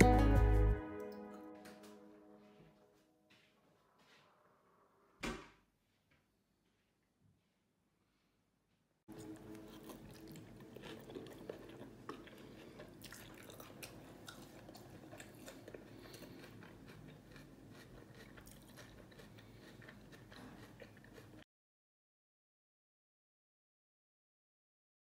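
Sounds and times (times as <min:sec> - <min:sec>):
person chewing: 0:09.1 - 0:21.4.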